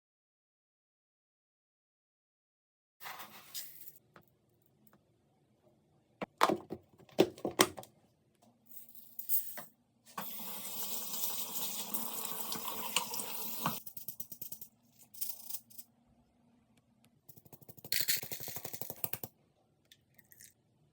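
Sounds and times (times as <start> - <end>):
tap running into container: 12.2 - 13.8.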